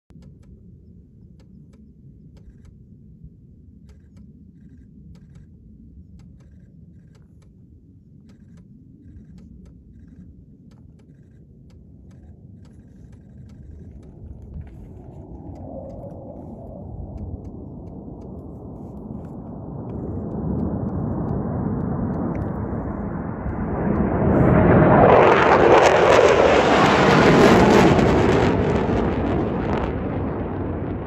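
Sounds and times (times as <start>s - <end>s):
faint clicks: 0.1s - 2.8s, 3.8s - 7.6s, 8.2s - 24.1s
distant jet: 0.1s - 31.0s
low outdoor rumble: 0.1s - 31.0s.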